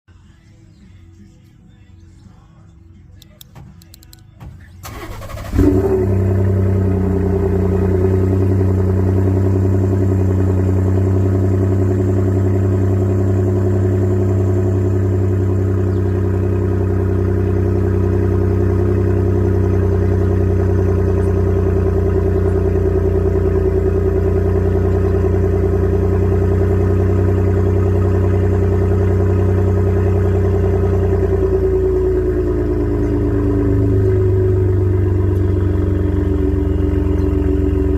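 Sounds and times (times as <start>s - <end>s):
engine idling: 3.1s - 37.9s
engine cranking and starting: 3.4s - 7.3s.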